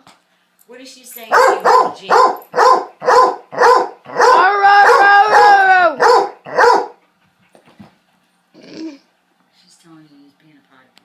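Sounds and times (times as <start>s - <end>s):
hound puppy baying: 1.3s - 7.1s.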